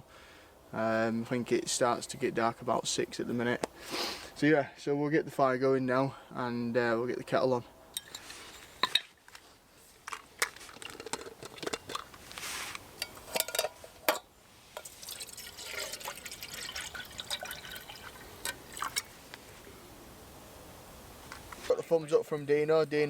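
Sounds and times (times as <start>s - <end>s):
metal clinks and knocks: 13.0s - 14.3s
water pouring into kettle: 14.8s - 19.1s.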